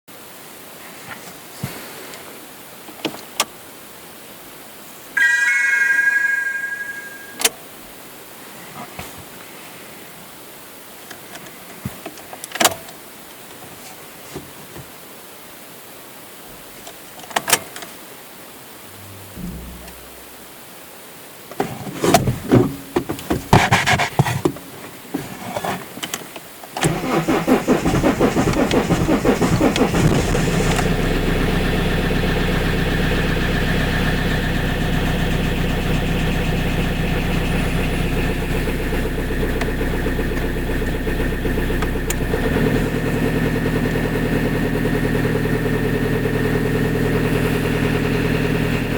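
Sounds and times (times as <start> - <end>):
diesel engine cranking: 26.8 - 45.6
diesel engine idling: 26.9 - 46.3.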